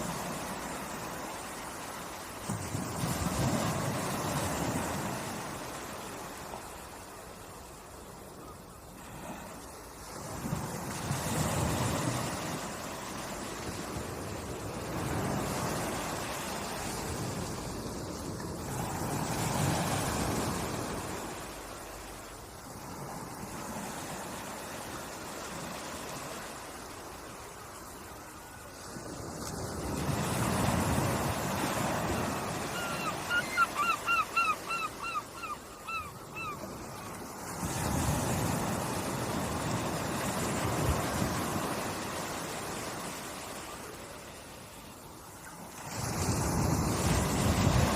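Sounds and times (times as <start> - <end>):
ocean waves washing in: 0.0 - 47.9
bird calling short clear calls: 32.7 - 36.6.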